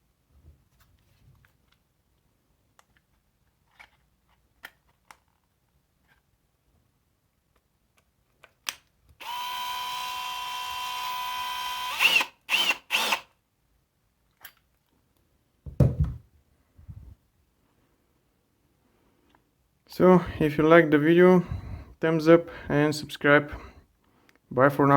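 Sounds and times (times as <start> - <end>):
cordless drill motor running: 9.2 - 13.3
dull thump: 15.7 - 16.2.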